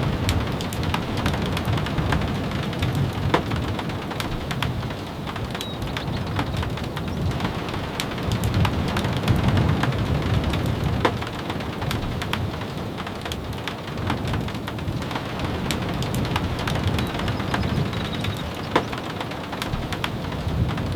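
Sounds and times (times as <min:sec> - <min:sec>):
steady rain: 0:00.0 - 0:20.9
sharp clicks and pops: 0:15.7 - 0:20.2.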